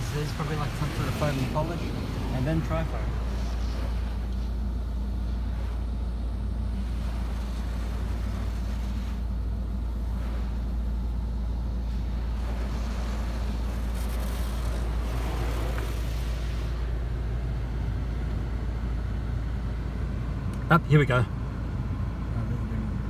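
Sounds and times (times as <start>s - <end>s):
water spray hissing on car: 0.0s - 18.4s
car wash low hum: 0.0s - 23.0s.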